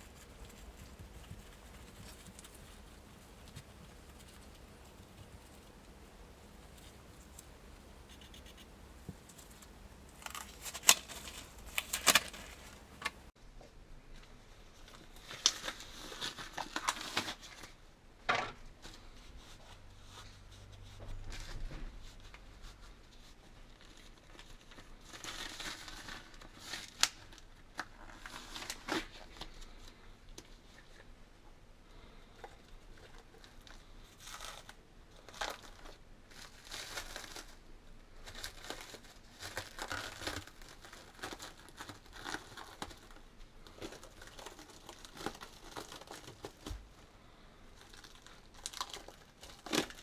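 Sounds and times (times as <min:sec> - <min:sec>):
scraping and rubbing: 0:00.0 - 0:13.3.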